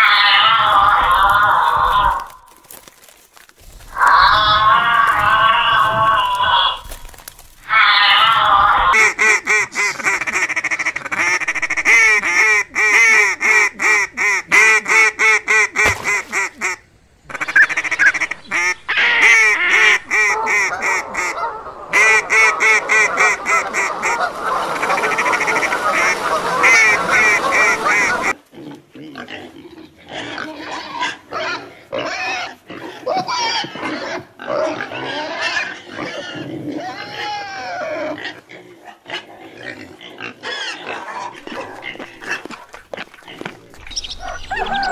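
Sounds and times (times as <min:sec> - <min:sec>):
piglets grunting: 0:00.0 - 0:02.5, 0:03.8 - 0:09.0, 0:27.4 - 0:44.9
ducks quacking: 0:03.9 - 0:28.4, 0:40.5 - 0:44.9.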